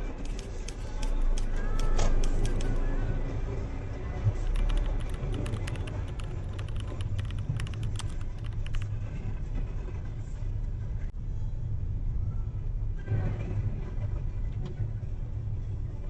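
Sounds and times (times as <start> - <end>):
road and engine rumble: 0.0 - 16.0
light clicks: 4.5 - 8.9.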